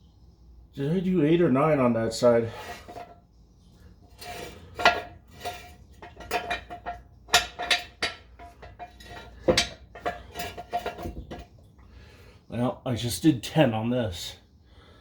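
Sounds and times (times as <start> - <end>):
hand tools clinking on metal: 4.2 - 11.5.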